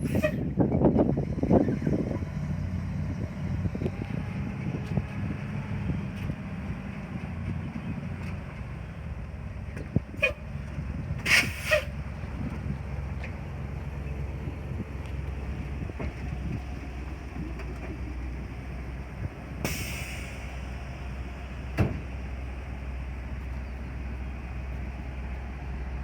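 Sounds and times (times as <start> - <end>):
truck engine idling: 0.0 - 26.0
short hiss: 19.6 - 20.7.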